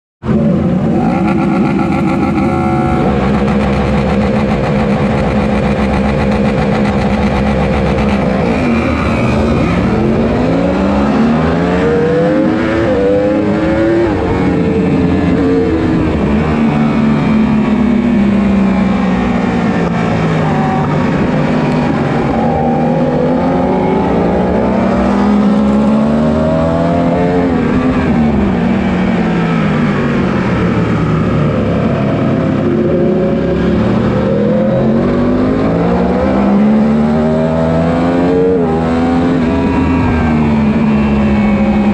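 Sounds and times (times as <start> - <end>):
engine shifting through gears: 0.2 - 41.9
superbike engines revving: 0.3 - 28.5.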